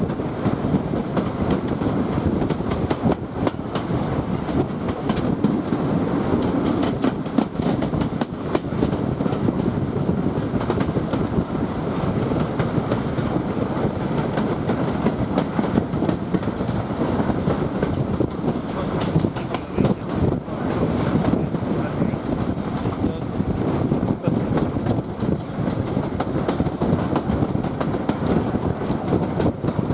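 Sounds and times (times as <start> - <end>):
wheels clicking over track: 0.0 - 20.4
train coach rumble: 0.0 - 29.9.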